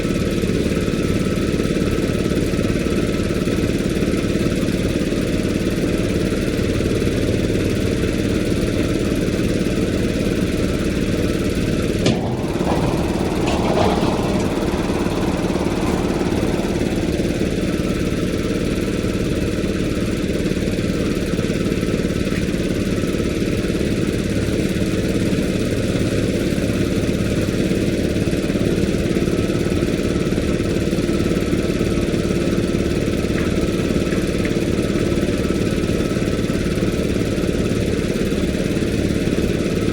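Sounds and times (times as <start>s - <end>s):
engine idling: 0.0s - 39.9s
brief clatter: 12.0s - 17.6s.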